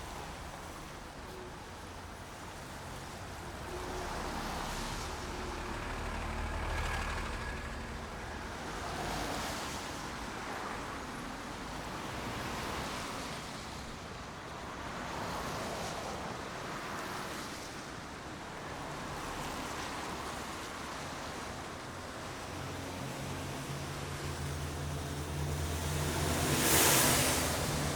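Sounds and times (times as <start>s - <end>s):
rain hissing: 23.0s - 27.9s.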